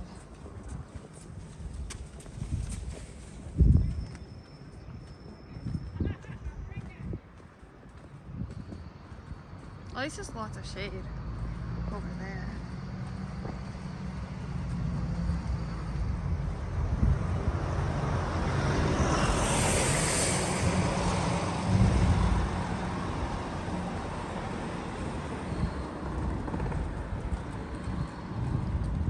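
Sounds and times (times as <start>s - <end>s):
road traffic passing: 3.0s - 29.0s
vehicle passing close: 10.9s - 29.0s.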